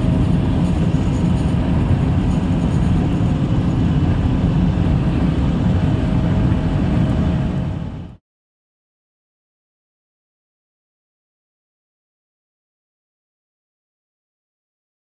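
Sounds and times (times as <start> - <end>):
strong wind buffeting microphone: 0.0 - 8.2.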